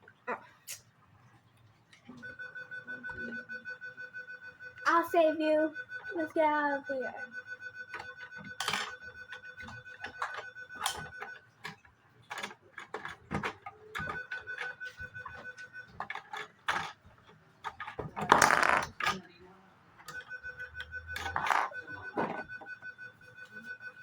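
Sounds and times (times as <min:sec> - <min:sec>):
plastic toy pieces clicking: 0:17.6 - 0:19.2, 0:21.2 - 0:21.7.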